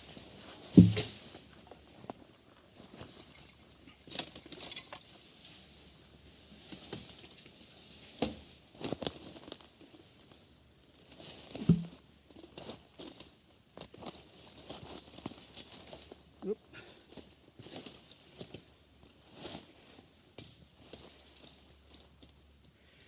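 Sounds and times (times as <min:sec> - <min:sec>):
dry leaves and twigs rustling: 0:00.0 - 0:22.7
heavy thud: 0:00.8 - 0:01.2, 0:11.7 - 0:12.0.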